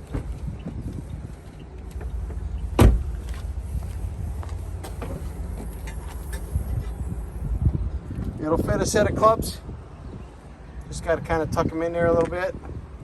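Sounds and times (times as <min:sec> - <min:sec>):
low rumbling handling noise: 0:00.0 - 0:09.4
car trunk latch thump: 0:02.8 - 0:03.3.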